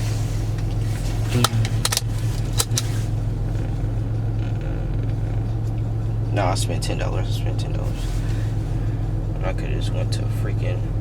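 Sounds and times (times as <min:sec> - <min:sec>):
car cabin drone: 0:00.0 - 0:11.0
sharp clicks and knocks: 0:00.6 - 0:02.9.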